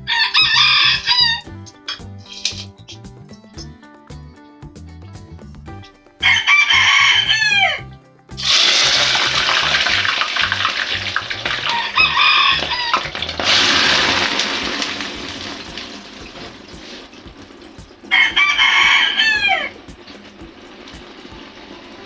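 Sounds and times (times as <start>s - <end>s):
rooster crowing: 0.0s - 1.5s, 6.2s - 9.6s, 11.4s - 15.5s, 18.1s - 19.9s
loud steady rushing noise: 13.2s - 22.0s.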